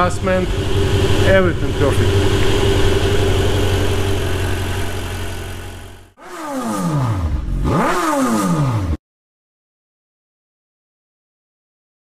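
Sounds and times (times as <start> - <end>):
car engine idling: 0.0 - 6.2
engine revving: 0.0 - 9.0.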